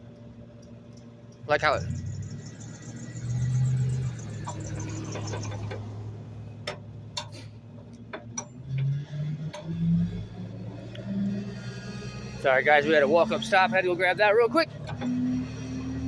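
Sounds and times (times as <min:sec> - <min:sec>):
sharp clicks and knocks: 0:04.3 - 0:06.0, 0:06.6 - 0:09.7.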